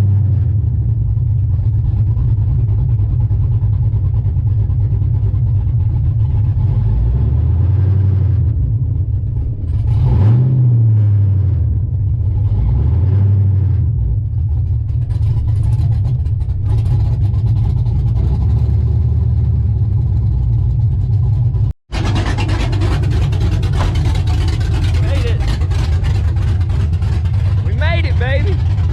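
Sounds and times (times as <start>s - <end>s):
loud truck engine revving: 0.0s - 0.6s, 6.2s - 8.7s, 9.4s - 14.1s, 15.2s - 20.0s, 21.6s - 28.9s.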